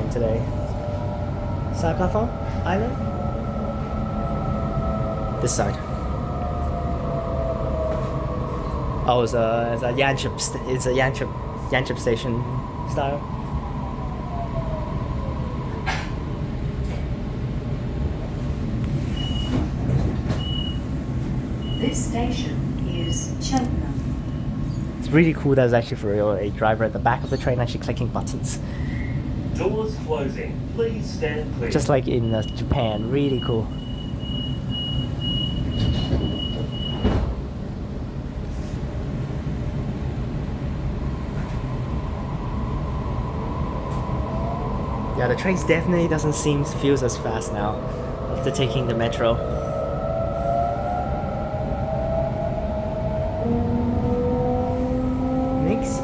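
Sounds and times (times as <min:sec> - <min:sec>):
train interior rumble: 0:00.0 - 0:56.0
train door warning beeps: 0:19.0 - 0:21.0, 0:21.6 - 0:23.3, 0:32.1 - 0:37.4.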